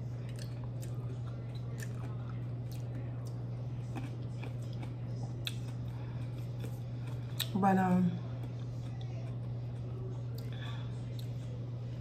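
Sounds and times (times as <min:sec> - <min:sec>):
steady low hum: 0:00.0 - 0:12.0
wet chewing squishes: 0:00.2 - 0:07.6.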